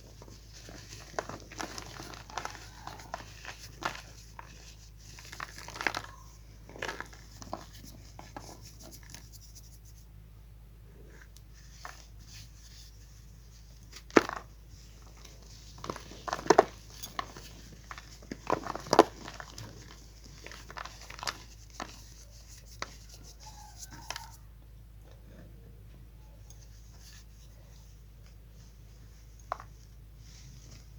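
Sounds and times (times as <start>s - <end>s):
chalk crunching: 0.3s - 10.1s, 15.5s - 24.4s.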